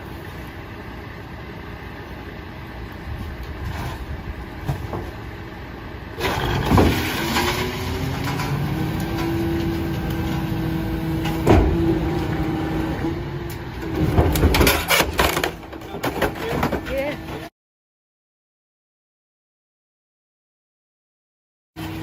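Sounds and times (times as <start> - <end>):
garbage truck engine rumble: 0.0 - 17.5.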